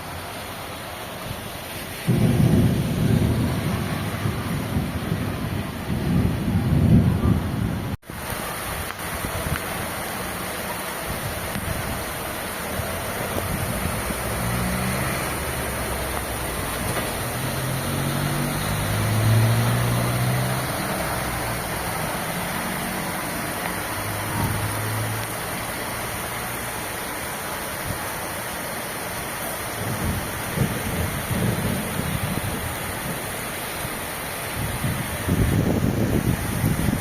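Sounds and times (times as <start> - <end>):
steady rain: 0.0 - 37.0
vehicle passing with engine hum: 13.6 - 26.9.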